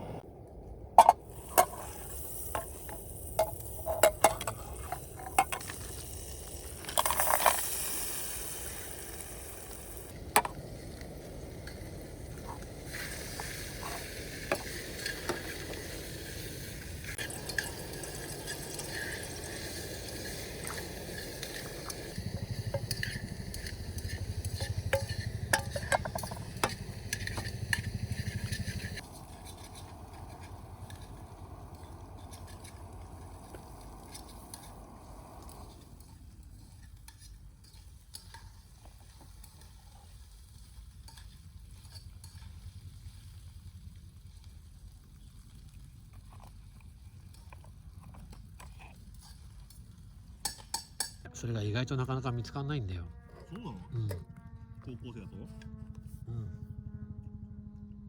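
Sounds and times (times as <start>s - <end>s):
food sizzling over fire: 1.0s - 51.2s
loud hiss: 1.2s - 10.1s
metal cookware clinking: 22.7s - 27.8s.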